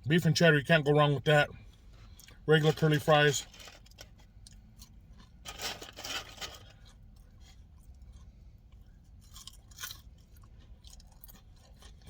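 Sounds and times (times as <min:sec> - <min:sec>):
food crunching: 0:03.5 - 0:12.0.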